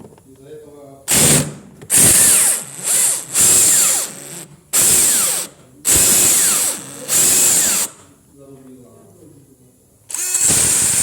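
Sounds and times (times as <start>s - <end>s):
impact wrench motor whining: 1.1s - 8.0s, 10.1s - 11.0s.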